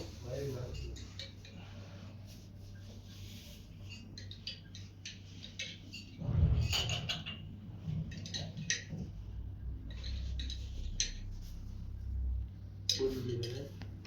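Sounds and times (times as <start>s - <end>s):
low rumble: 6.2s - 8.2s.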